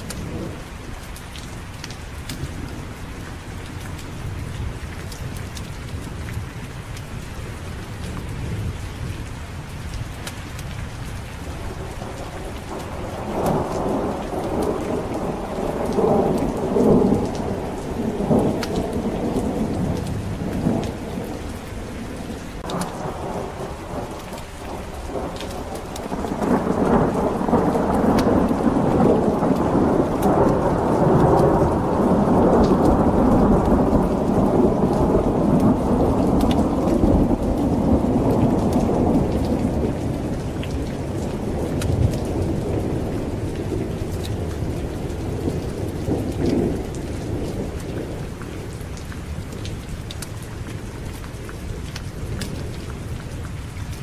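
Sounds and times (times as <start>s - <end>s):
heavy rain: 0.0s - 54.0s
rolling thunder: 11.4s - 49.6s.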